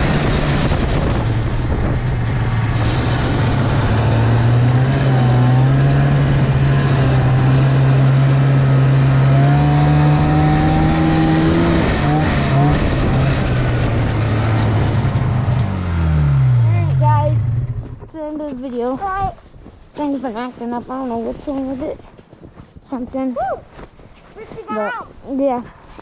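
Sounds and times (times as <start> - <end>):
snowmobile engine running: 0.0 - 19.3.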